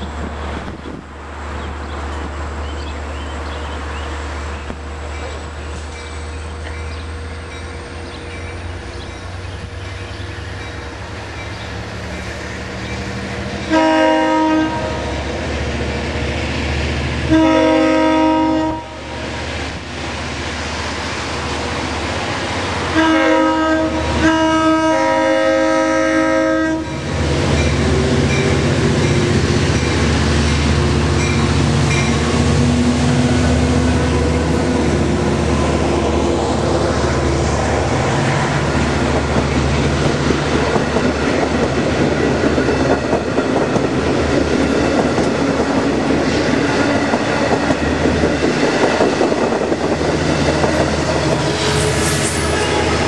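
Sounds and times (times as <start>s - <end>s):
train engine and rumble: 0.0s - 53.0s
train horn blasts: 13.6s - 15.3s, 17.2s - 19.1s, 22.9s - 28.7s, 50.7s - 53.0s.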